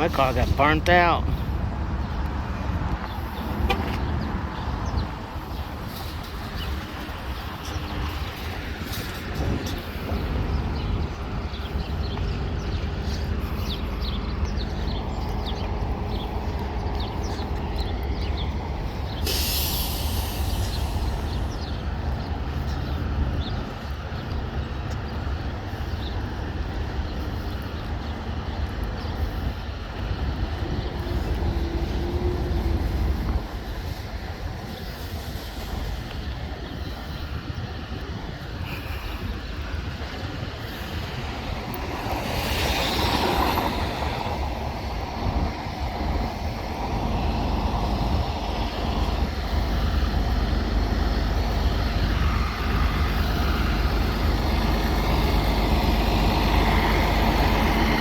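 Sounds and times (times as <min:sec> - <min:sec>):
compressed air hiss: 0:19.2 - 0:21.6
diesel engine idling: 0:46.7 - 0:58.0.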